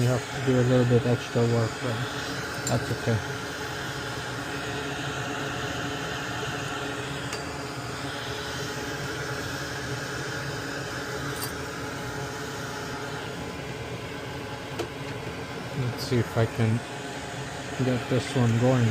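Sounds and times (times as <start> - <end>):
hot air station hissing: 0.0 - 18.9.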